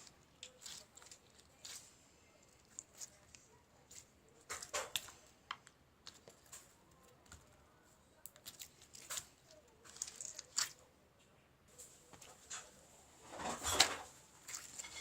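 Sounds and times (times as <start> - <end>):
crinkling rustles: 0.0 - 10.9, 11.7 - 15.0.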